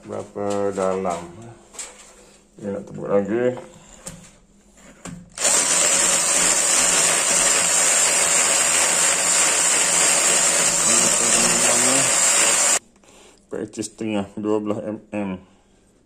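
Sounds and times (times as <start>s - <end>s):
cordless drill boring: 5.4s - 12.8s.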